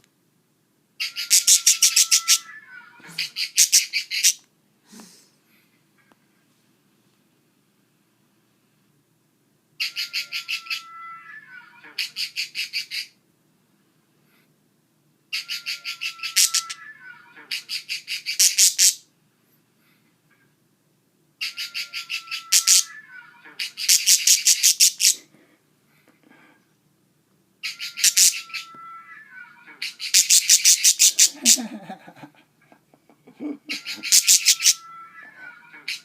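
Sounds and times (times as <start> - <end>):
budgerigar call: 33.7 - 34.8.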